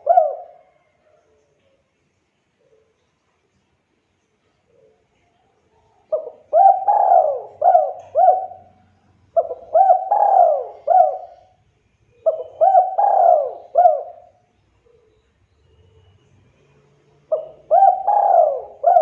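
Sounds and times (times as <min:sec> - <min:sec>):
dove cooing: 0:00.0 - 0:01.2, 0:06.0 - 0:15.2, 0:17.2 - 0:19.0.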